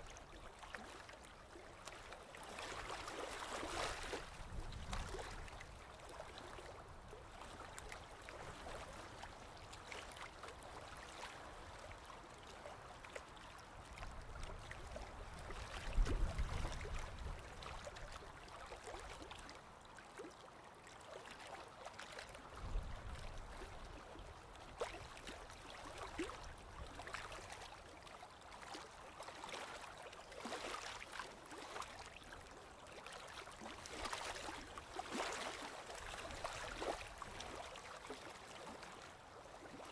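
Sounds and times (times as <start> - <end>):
sea water lapping and gurgling: 0.0 - 39.9
small crackling splashes: 24.8 - 39.9.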